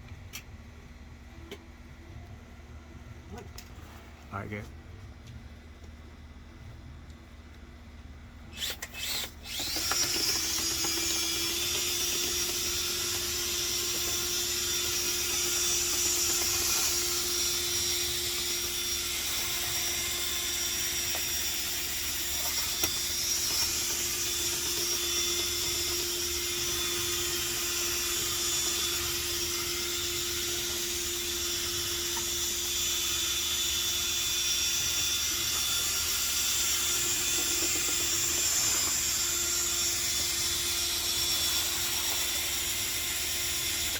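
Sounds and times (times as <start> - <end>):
power drill whine: 8.5 - 43.9.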